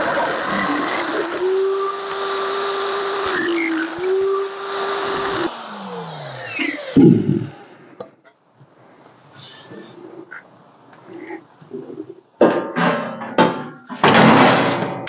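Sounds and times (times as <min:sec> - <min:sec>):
power cutting tool cutting steel: 0:00.0 - 0:08.0.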